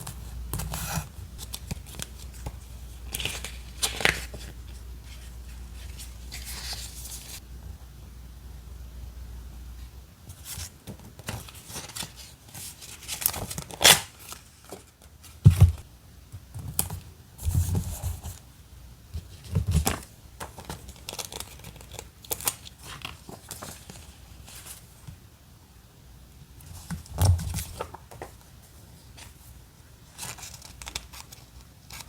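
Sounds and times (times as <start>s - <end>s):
paper rustling and crinkling: 0.0s - 7.4s, 10.3s - 15.8s, 19.3s - 25.1s, 26.8s - 32.0s.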